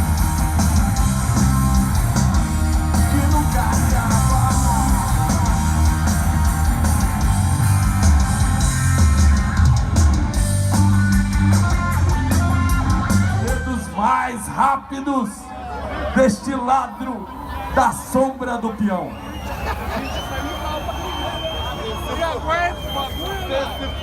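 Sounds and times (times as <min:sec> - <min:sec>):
electric guitar: 0:00.0 - 0:14.0
live rock band playing: 0:00.0 - 0:14.2.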